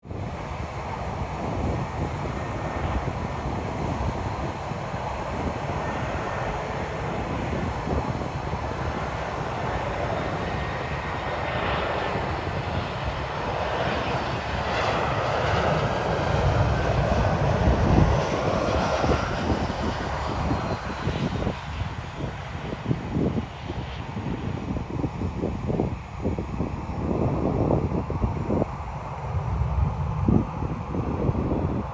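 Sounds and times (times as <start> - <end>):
jet airliner passing by: 0.0 - 31.9.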